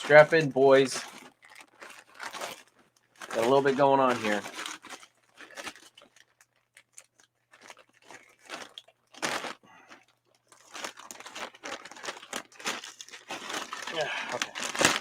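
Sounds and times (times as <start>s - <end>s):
package wrapping tearing and crinkling: 0.0s - 15.0s.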